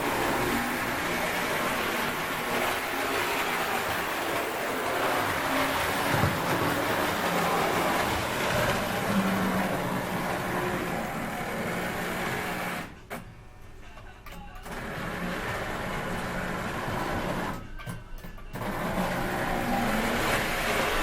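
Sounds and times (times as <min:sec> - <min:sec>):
model locomotive whirring: 0:00.0 - 0:12.9, 0:18.6 - 0:21.0.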